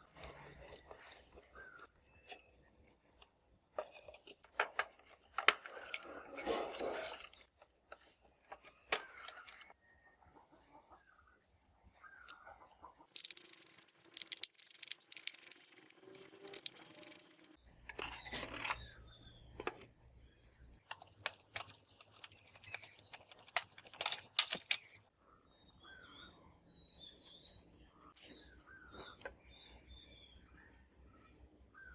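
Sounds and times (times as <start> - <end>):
clicks taps and scrapes of tools: 20.8 - 25.1.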